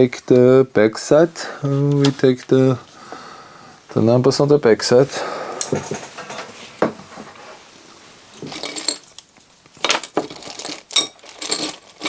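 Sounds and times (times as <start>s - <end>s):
metal parts and screws clinking: 8.4s - 9.2s, 9.8s - 12.0s.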